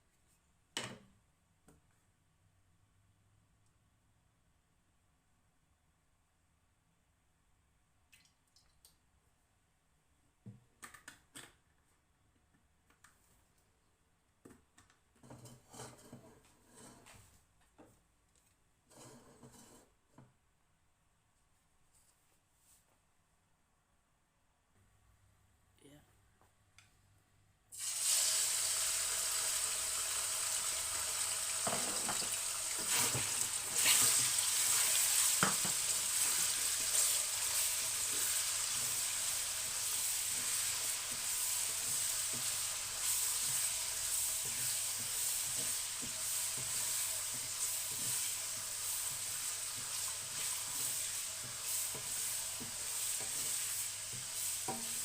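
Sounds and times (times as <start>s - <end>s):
chicken sizzling in oil: 27.7s - 55.0s.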